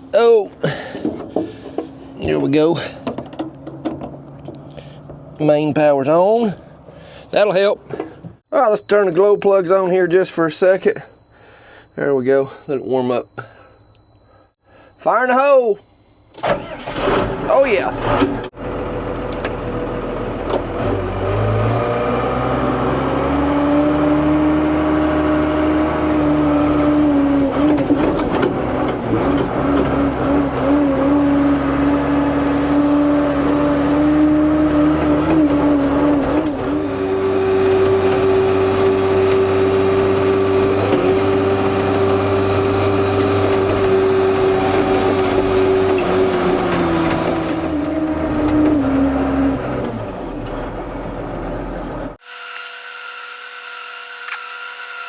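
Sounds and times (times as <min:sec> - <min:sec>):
diesel engine revving: 0:16.4 - 0:52.2.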